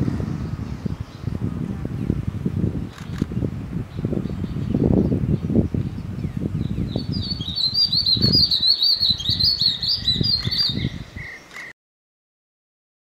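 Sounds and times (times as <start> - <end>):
songbirds chirping: 0.3 - 11.7.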